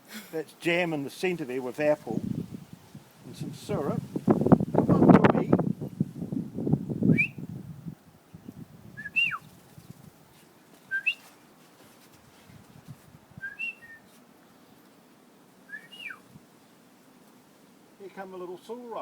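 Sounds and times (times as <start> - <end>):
short whistled call: 7.1 - 7.4, 9.0 - 9.5, 10.9 - 11.3, 13.4 - 14.2, 15.7 - 16.3.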